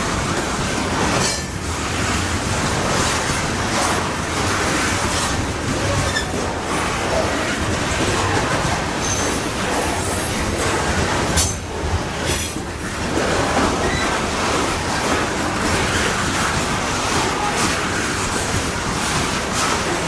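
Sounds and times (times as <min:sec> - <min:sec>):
train cars rumbling on rails: 0:00.0 - 0:20.0
wheel squeals: 0:04.7 - 0:12.7, 0:13.8 - 0:14.3.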